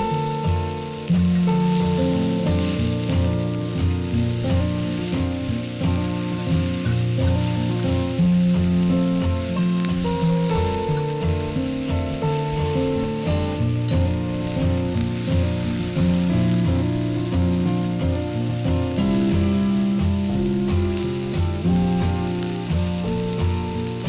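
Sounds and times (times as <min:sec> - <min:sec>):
background music: 0:00.0 - 0:24.0
food sizzling on a grill: 0:00.0 - 0:24.0.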